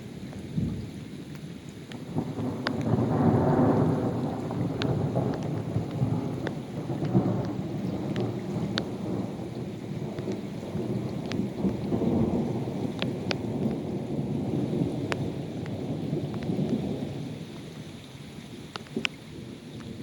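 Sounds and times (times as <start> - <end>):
raindrops ticking on surface: 0.0 - 20.0
steady rain: 0.0 - 20.0
thunder rumbling: 1.9 - 17.9.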